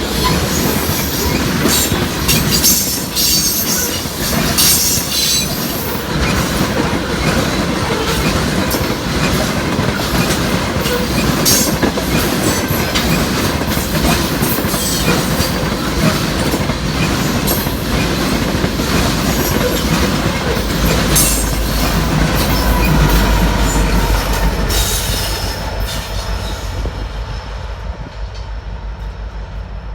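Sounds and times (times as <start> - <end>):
freight train rumbling past: 0.0 - 29.9
wheels clicking over rail joints: 0.1 - 26.2.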